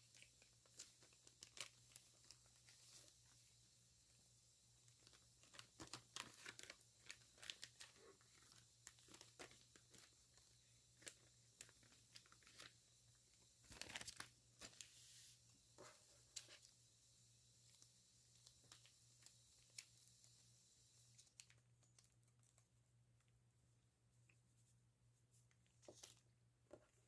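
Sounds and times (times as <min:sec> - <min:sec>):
envelope packaging tearing and crinkling: 0:00.0 - 0:02.7, 0:04.9 - 0:12.8, 0:13.6 - 0:14.9.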